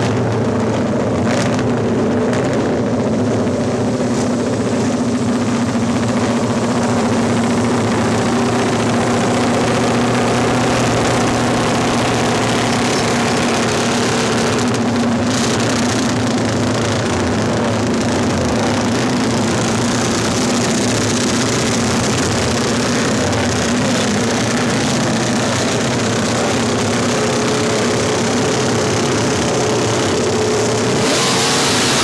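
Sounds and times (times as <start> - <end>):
motorcycle engines idling: 0.0 - 32.0.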